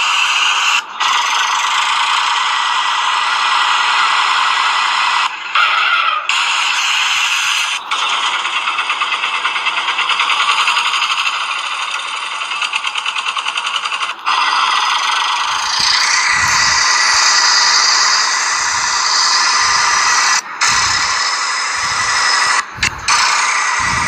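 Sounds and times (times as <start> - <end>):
steady rasping noise: 0.0 - 24.0
toy motor and gears rattling: 0.0 - 24.0
low thumps: 15.8 - 21.2, 21.8 - 24.0.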